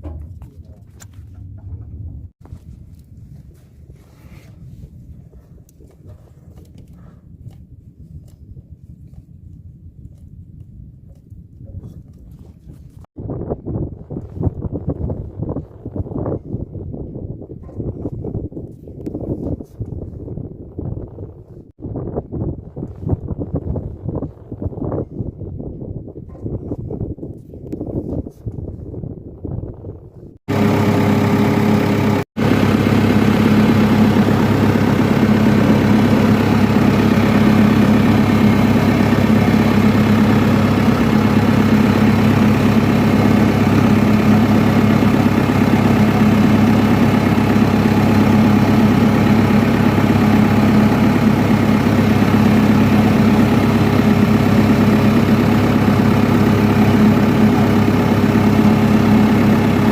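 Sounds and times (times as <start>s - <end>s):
diesel engine idling: 30.5s - 59.9s.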